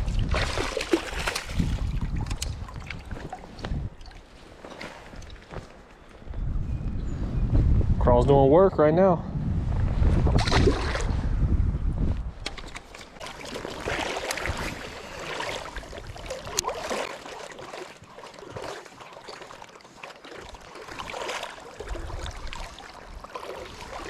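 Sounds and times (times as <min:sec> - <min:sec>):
creek water splashing and trickling: 0:00.0 - 0:05.8, 0:12.5 - 0:24.0.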